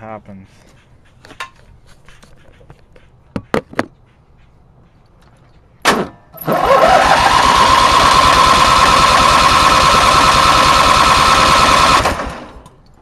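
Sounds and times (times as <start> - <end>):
small gasoline engine starting: 6.4 - 12.8.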